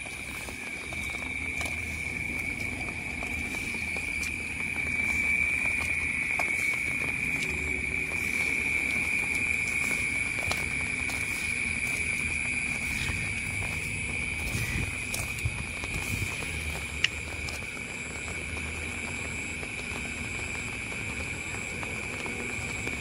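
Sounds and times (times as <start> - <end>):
light taps of rain: 0.0 - 23.0
night insects chorus: 0.0 - 23.0.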